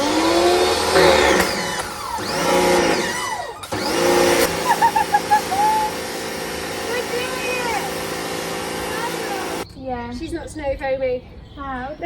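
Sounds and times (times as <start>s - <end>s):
pressure washer motor whining: 0.0s - 9.6s.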